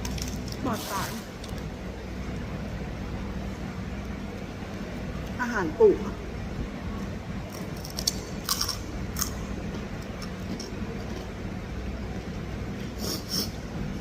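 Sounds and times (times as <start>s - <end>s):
steady low hum: 0.0s - 14.0s
eating crunches: 7.5s - 11.4s.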